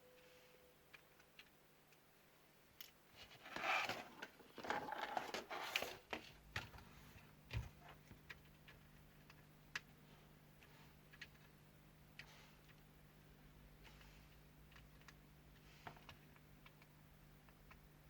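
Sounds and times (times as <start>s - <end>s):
parts and tools rustling: 2.8s - 9.4s.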